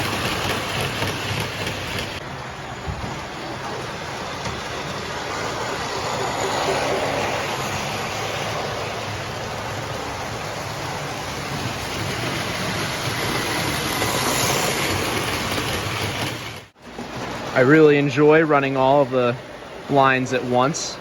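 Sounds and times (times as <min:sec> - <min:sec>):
model trains rumbling on track: 0:00.0 - 0:21.0.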